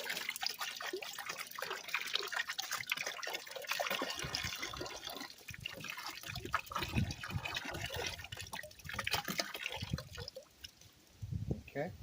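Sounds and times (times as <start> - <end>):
liquid splashing trickle: 0.0 - 11.2
wind rumble on microphone: 6.7 - 8.2, 11.2 - 12.0.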